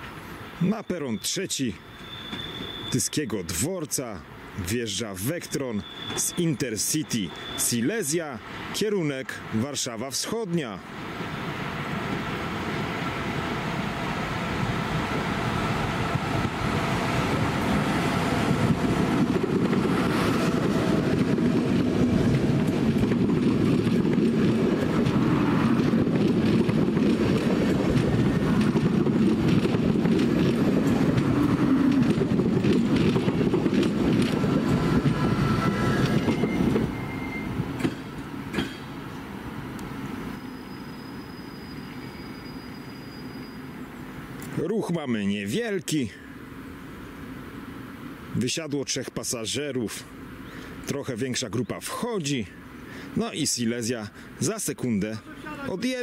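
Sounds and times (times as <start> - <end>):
brief thin squeal: 1.9 - 3.0, 35.9 - 37.6, 40.3 - 43.7
train wheels rumbling on rails: 4.8 - 43.6.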